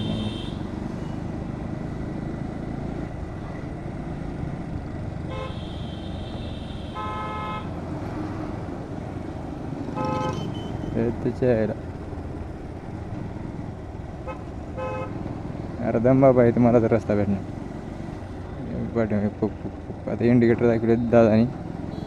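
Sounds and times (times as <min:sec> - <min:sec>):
vehicle horns honking: 0:00.0 - 0:00.6, 0:05.3 - 0:07.8, 0:09.9 - 0:11.0, 0:14.2 - 0:15.2
lower vehicle horn: 0:00.0 - 0:01.1, 0:05.2 - 0:08.0, 0:09.9 - 0:11.1, 0:14.2 - 0:15.3
motorcycle engine rumble: 0:00.0 - 0:22.0.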